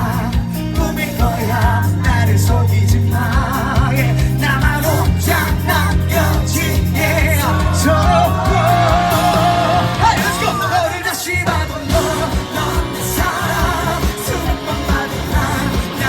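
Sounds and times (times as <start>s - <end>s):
man singing: 0.0s - 16.0s
pop-rock song: 0.0s - 16.0s.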